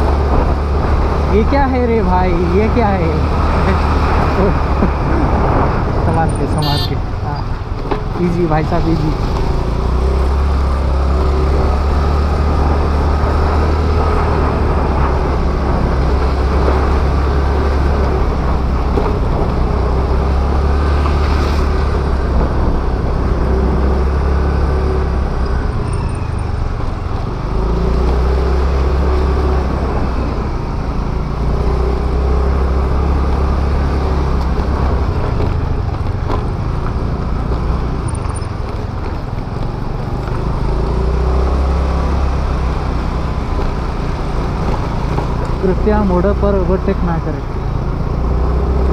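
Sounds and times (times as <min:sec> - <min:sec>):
wind rumble on microphone: 0:00.0 - 0:08.3
road noise: 0:00.0 - 0:48.9.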